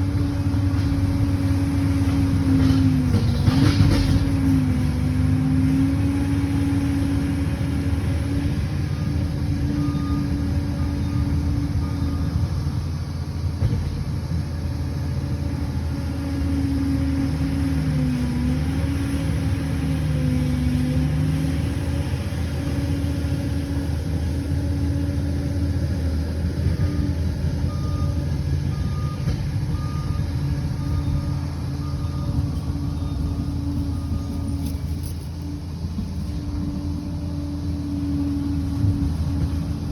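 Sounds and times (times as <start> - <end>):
diesel engine running: 0.0 - 39.9
reversing alarm beeping: 8.9 - 12.9, 26.6 - 35.0.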